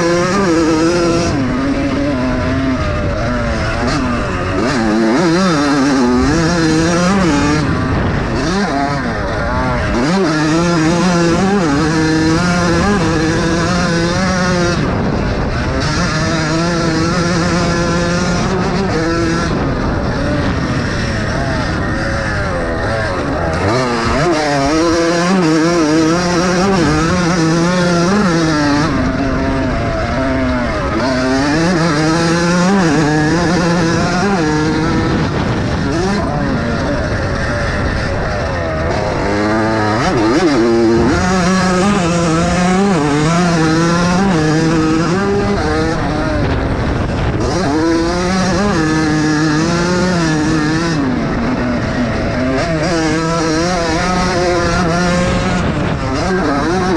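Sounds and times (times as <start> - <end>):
motocross bike engines revving: 0.0 - 56.9.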